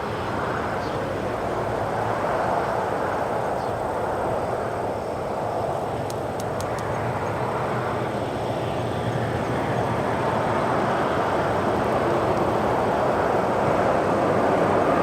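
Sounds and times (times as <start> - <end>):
airliner jet engine rumble: 0.0 - 15.0.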